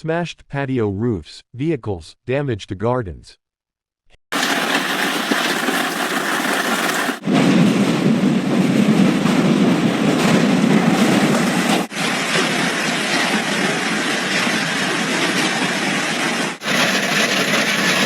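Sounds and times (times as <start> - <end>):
hail and heavy rain pelting: 4.3 - 7.2, 16.6 - 18.0.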